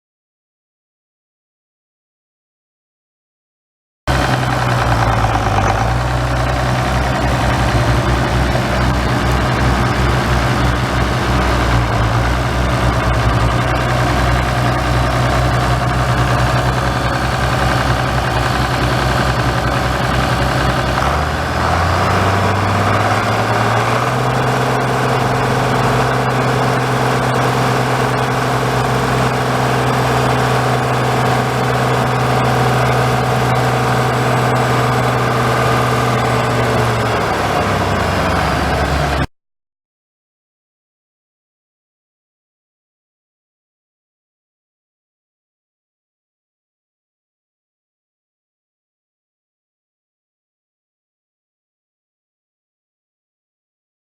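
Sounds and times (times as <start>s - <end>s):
tractor diesel engine idling: 4.1s - 39.3s.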